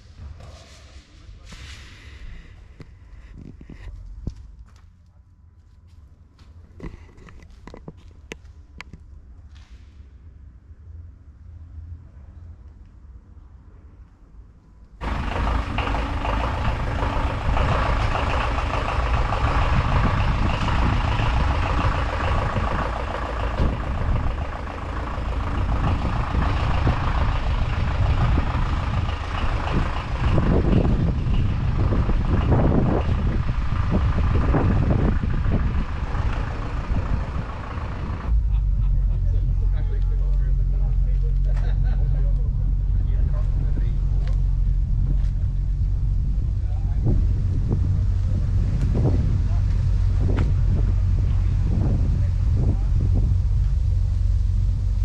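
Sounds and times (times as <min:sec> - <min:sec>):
vehicle engine running and revving: 0:15.0 - 0:55.0.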